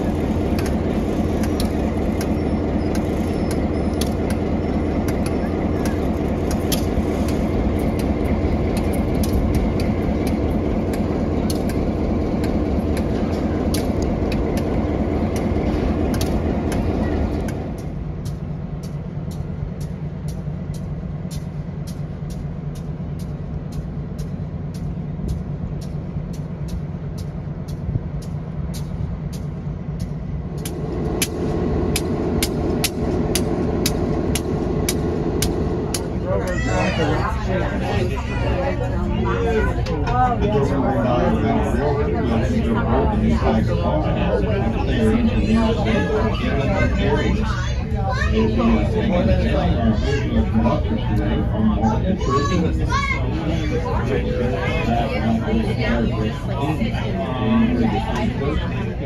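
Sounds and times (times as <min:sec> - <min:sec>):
train wheels clicking: 0:00.0 - 0:40.3
hum: 0:00.0 - 0:59.0
train engine drone: 0:00.0 - 0:59.0.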